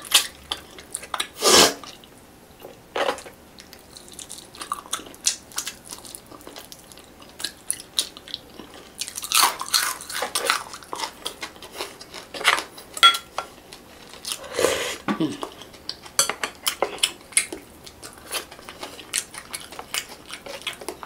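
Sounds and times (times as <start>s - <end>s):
close chewing of fried fish: 0.0s - 2.2s, 3.5s - 14.5s, 15.4s - 21.0s
spoon clinking glass bowl: 13.0s - 13.3s.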